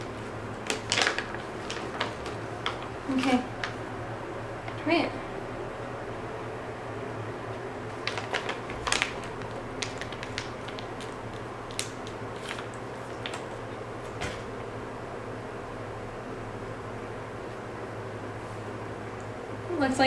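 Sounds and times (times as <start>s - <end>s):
low steady hum: 0.0s - 20.0s
dog chewing crunchy treat: 8.0s - 13.6s.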